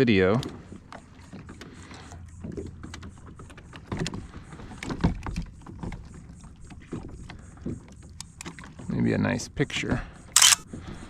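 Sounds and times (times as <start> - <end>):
knocks and clicks aboard kayak: 0.1 - 9.0.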